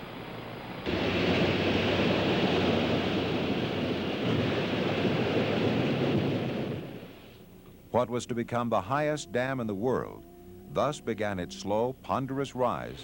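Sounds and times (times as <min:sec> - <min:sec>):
loud rushing noise: 0:00.9 - 0:07.3.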